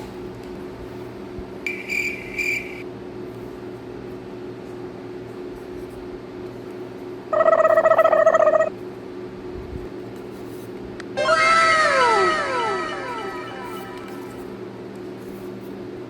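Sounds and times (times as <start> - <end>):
steady low hum: 10.8 - 15.4
buzzy rattling toy tone: 11.2 - 14.6
falling-pitch electronic sweeps: 11.2 - 14.6.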